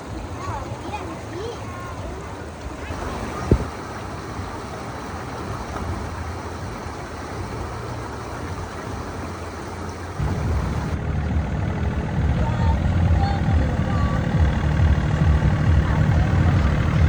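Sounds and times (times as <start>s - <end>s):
noisy wash: 0.0s - 11.2s
vehicle engine running: 0.0s - 17.0s.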